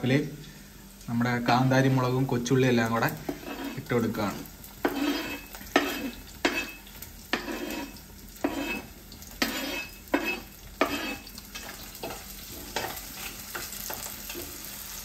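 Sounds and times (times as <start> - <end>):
food sizzling in oil: 0.0 - 15.0
spatula scraping cutting board: 3.2 - 13.4.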